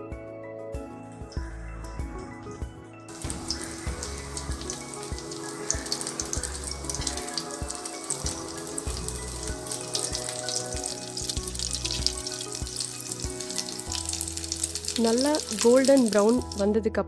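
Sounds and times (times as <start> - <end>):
patties sizzling in hot oil: 3.1 - 16.8.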